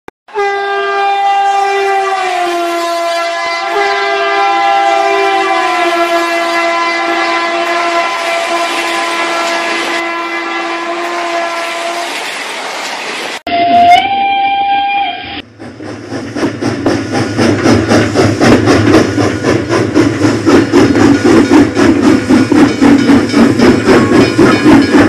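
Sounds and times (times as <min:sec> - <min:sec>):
train horn blast: 0:00.3 - 0:12.2, 0:13.5 - 0:15.4.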